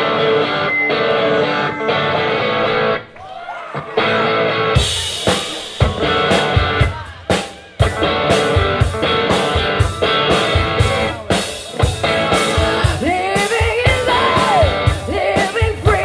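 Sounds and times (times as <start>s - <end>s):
electric guitar chord riff: 0.0s - 3.1s, 7.8s - 16.0s
drum kit beat: 3.7s - 16.0s.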